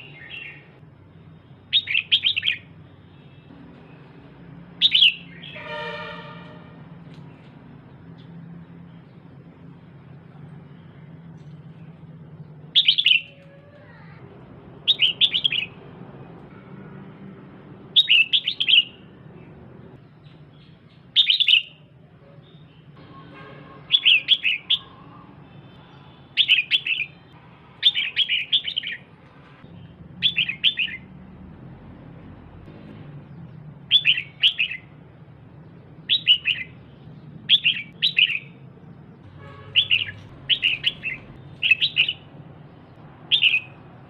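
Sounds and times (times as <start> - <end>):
bird rapid chirping: 1.6 - 3.4, 4.7 - 5.6, 12.6 - 14.0, 14.8 - 15.9, 17.9 - 19.5, 20.1 - 21.9, 29.9 - 31.1, 33.4 - 35.0, 35.6 - 44.0.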